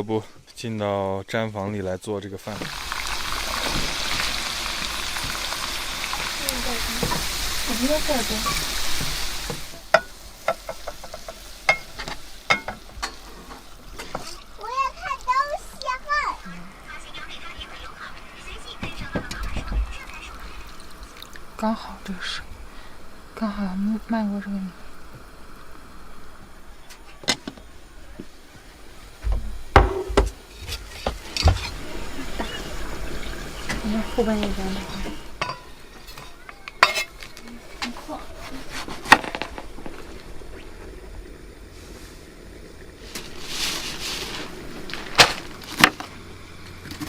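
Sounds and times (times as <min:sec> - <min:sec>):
food sizzling in a pot: 0:02.4 - 0:47.0
utensil clinking and scraping pot: 0:06.2 - 0:14.4, 0:33.5 - 0:40.1
knocks and thumps on wood: 0:29.2 - 0:30.4.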